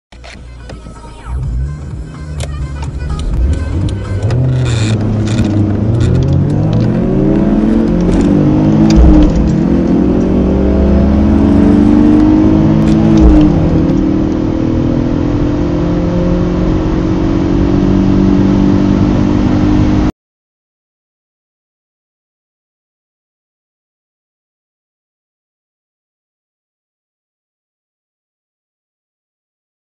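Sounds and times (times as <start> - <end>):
road and wind noise: 0.2 - 20.1
car engines accelerating: 1.2 - 20.1.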